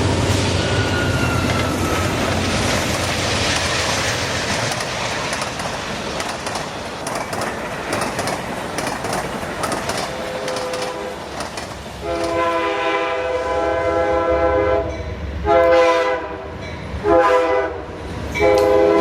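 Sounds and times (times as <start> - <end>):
locomotive engine rumble: 0.0 - 13.1
rush of passing railcars: 0.0 - 19.0
wheels clacking over rail joints: 1.0 - 12.9.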